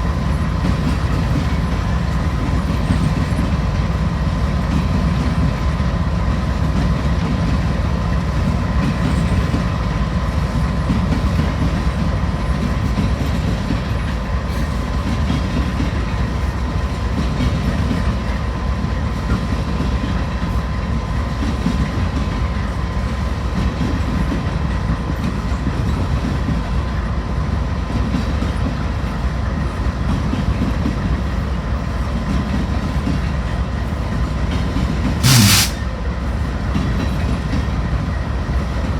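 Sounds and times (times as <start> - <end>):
freight train rumbling past: 0.0 - 38.9
thin steady whine: 35.2 - 35.8.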